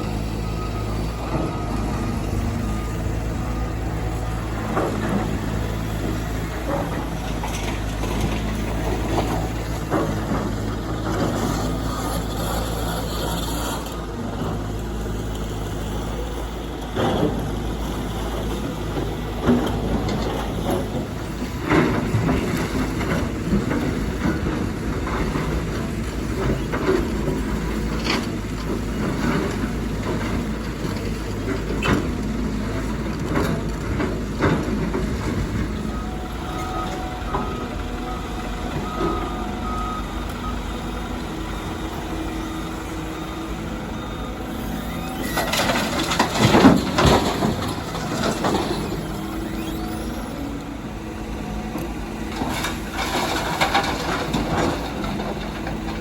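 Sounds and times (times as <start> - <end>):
earthmoving machinery running: 0.0 - 56.0
reversing alarm beeping: 35.6 - 50.6.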